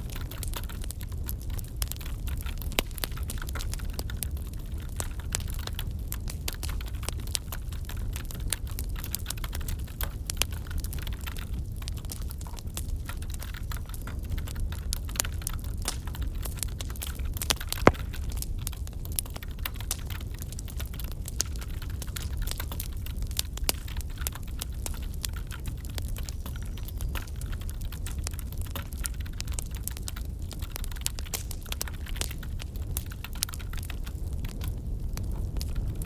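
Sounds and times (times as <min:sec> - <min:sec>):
wood fire crackling: 0:00.0 - 0:36.0.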